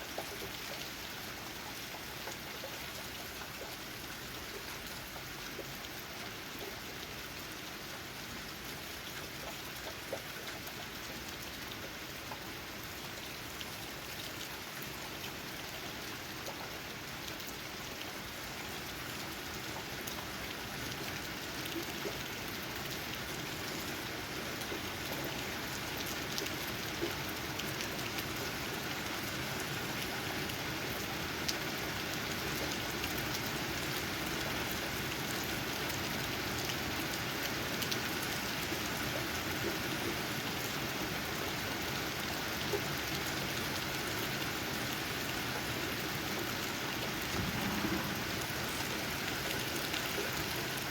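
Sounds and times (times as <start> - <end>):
steady rain hiss: 10.7 - 50.9
raindrops tapping on leaves: 43.0 - 50.9.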